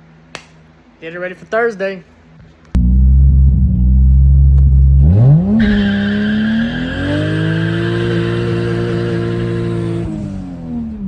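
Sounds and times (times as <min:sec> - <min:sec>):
car engine revving: 0:02.8 - 0:11.0
tyres squealing: 0:05.6 - 0:10.0.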